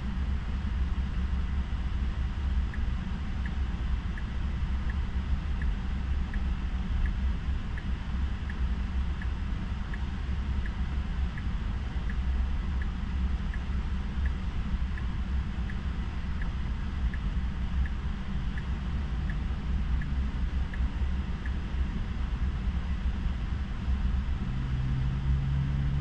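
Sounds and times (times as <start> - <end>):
car driving low rumble: 0.0 - 26.0
turn signal ticking: 2.6 - 21.7.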